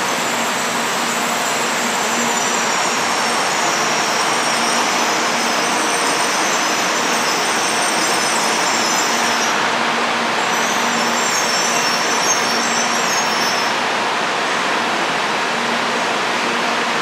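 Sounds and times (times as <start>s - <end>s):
train rushing noise: 0.0s - 17.0s.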